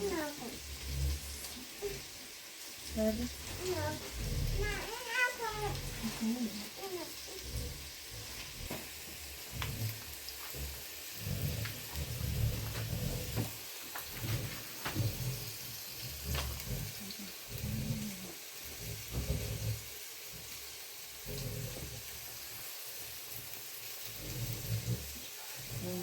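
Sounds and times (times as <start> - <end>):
hiss of falling rain: 0.0 - 26.0.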